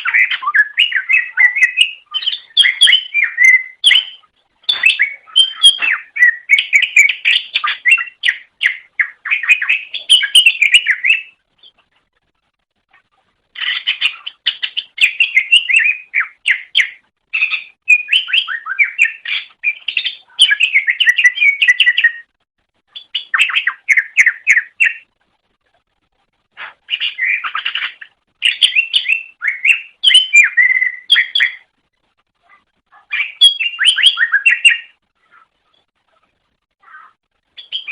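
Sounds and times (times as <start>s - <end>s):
bird twittering song: 0.0s - 12.1s, 12.9s - 25.2s, 26.6s - 31.8s, 32.4s - 37.9s.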